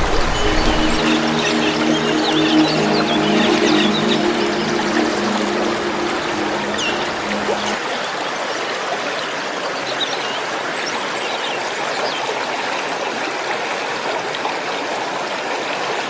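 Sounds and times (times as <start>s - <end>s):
held musical note: 0.0s - 7.8s
running water: 0.0s - 10.6s.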